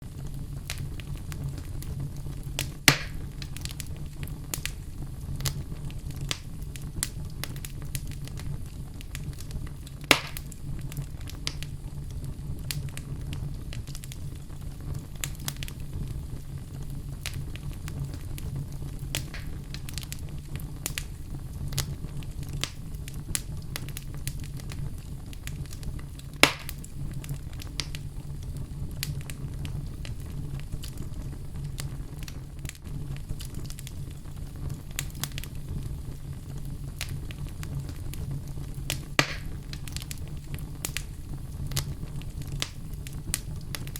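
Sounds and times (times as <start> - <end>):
fireplace fire crackling: 0.0 - 43.9
low rumble of flames: 0.0 - 43.9
sharp fire pops: 0.0 - 43.9.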